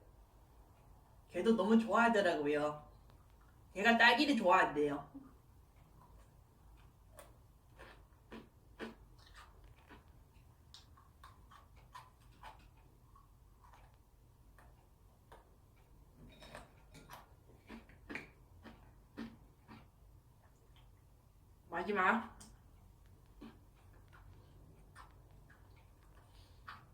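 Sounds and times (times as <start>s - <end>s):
person chewing crunchy biscuits: 5.5s - 21.5s, 22.4s - 26.9s.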